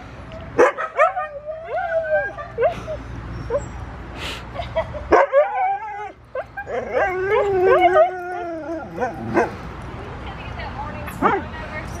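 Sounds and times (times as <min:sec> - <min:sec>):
dog howling: 0:05.3 - 0:09.5.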